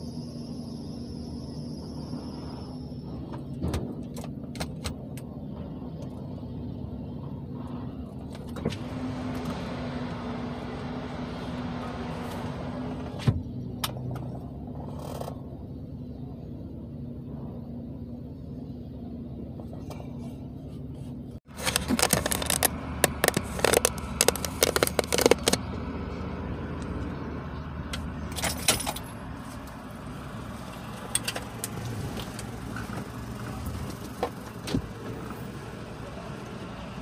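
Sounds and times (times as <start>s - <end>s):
car engine idling: 0.0s - 37.0s
sharp clicks and rattles: 21.4s - 25.7s.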